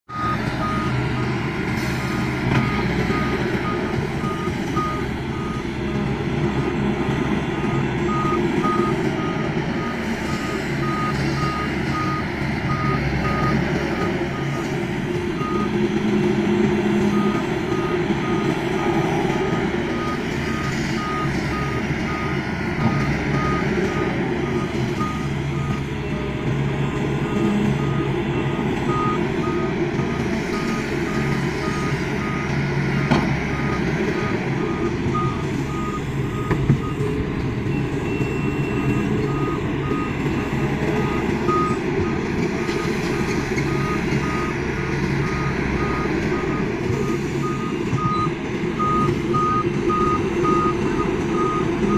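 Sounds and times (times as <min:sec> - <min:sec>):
heavy diesel engine running: 0:00.0 - 0:51.9
backup alarm beeping: 0:37.7 - 0:41.8, 0:43.6 - 0:44.6, 0:45.2 - 0:51.9.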